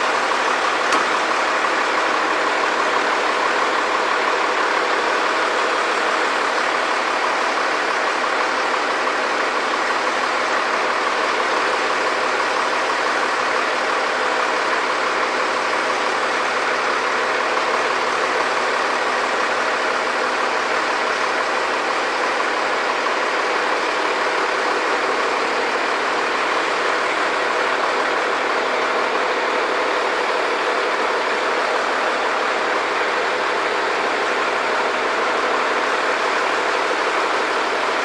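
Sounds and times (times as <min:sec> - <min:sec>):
large engine droning: 0:00.0 - 0:38.0.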